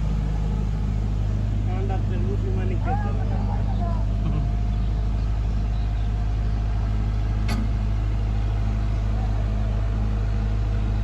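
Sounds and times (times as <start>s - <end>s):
tractor diesel engine running: 0.0s - 11.0s
sharp click: 7.5s - 7.8s.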